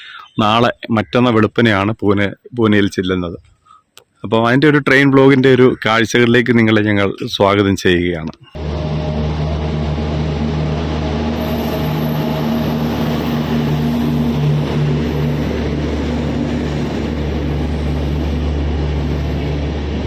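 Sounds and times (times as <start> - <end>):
train rumbling: 8.6 - 20.0.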